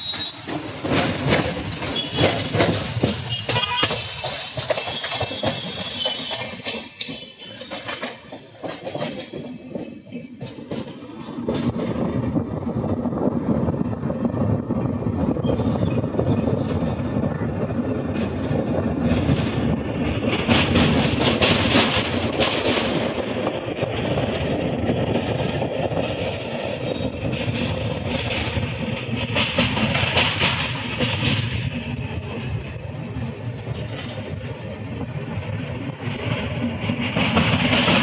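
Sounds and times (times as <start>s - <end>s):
train rumbling over bridge: 0.0s - 38.0s.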